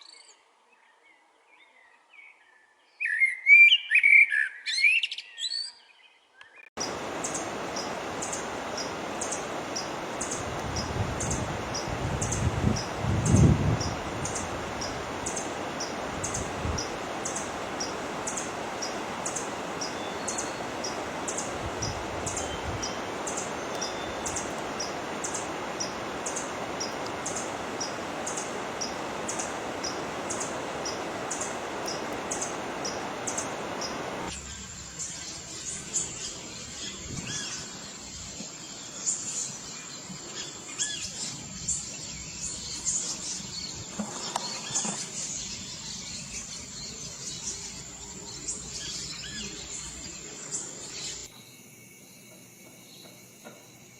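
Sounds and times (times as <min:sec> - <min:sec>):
steady rushing noise: 0:06.8 - 0:34.3
high insect drone: 0:06.8 - 0:44.2, 0:44.8 - 0:53.9.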